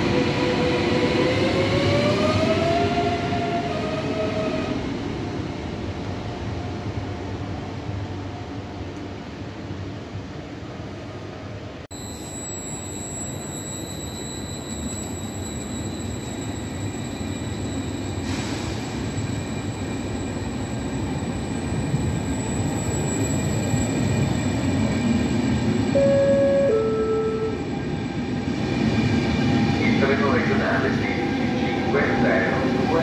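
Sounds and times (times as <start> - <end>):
electric train rumbling past: 0.0 - 33.0
high-pitched whines: 26.0 - 27.8.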